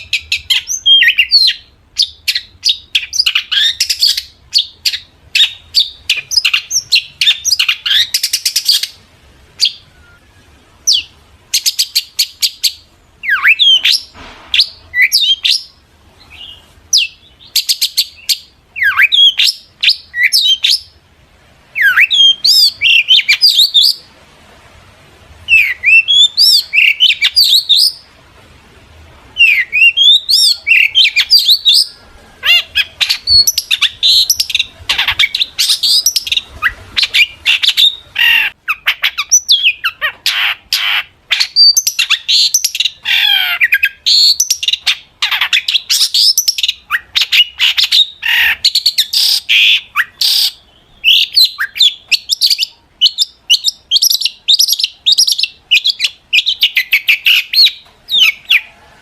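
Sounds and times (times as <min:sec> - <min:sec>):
shrike singing: 0:29.4 - 0:58.8.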